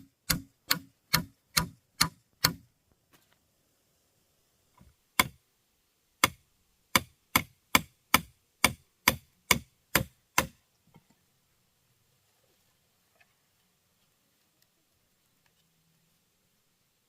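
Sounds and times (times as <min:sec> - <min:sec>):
hand tool striking: 0:00.2 - 0:02.6.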